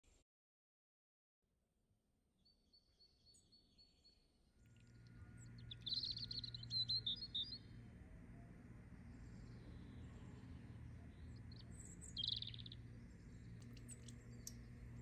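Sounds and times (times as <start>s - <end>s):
low steady hum: 4.6s - 15.0s
birds chirping: 5.2s - 7.7s, 9.1s - 15.0s.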